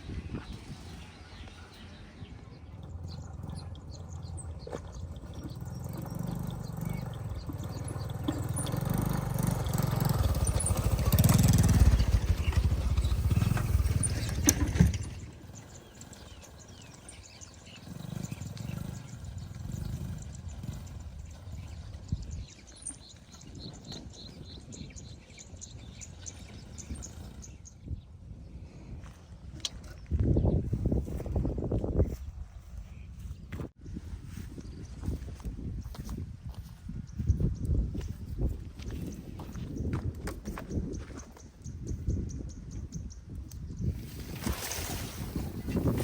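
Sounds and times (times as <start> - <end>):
small engine running: 2.7 - 27.9.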